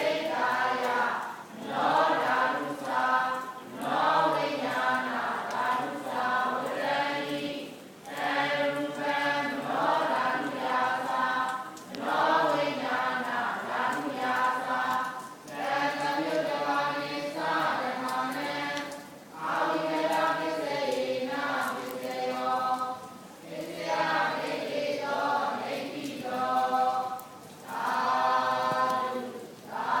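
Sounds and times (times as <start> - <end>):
group of voices chanting: 0.0 - 18.8.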